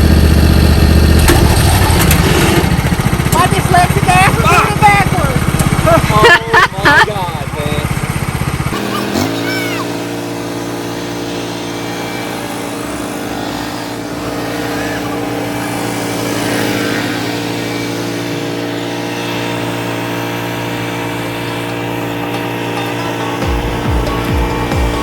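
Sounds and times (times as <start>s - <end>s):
lawn mower engine running: 0.0s - 25.0s.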